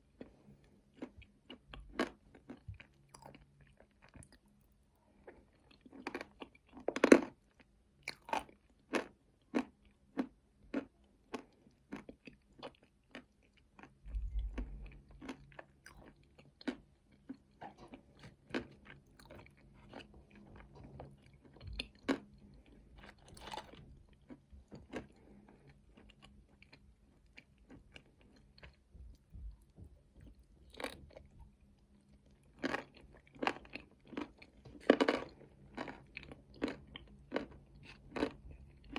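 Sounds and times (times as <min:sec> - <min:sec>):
chewing crunchy nuts: 0:00.0 - 0:38.9.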